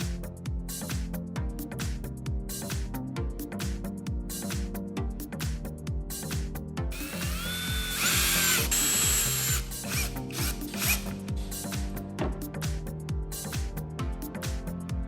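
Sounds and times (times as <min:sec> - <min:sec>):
background music with beat: 0:00.0 - 0:15.0
power-tool motor whining: 0:06.9 - 0:11.2.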